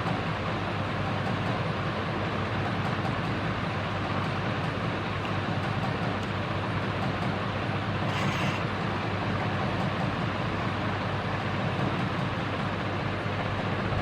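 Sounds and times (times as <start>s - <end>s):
low motor hum: 8.1s - 8.7s.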